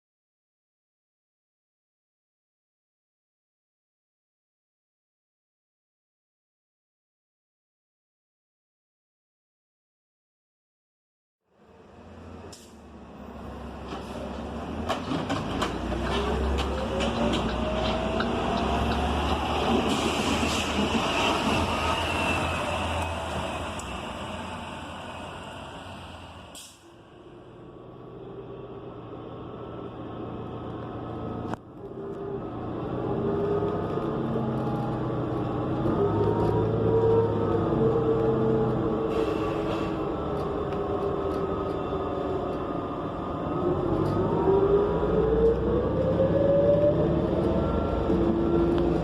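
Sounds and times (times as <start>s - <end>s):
bus engine drone and whine: 11.5s - 49.0s.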